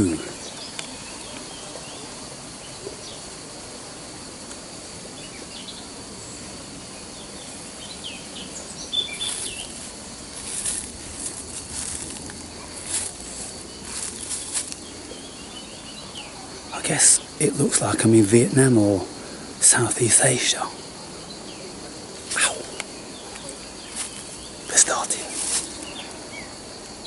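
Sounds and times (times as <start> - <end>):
birds chirping: 0.0 - 3.4, 5.1 - 26.7
insect drone: 0.0 - 27.0
rustling: 9.0 - 15.2, 23.4 - 26.2.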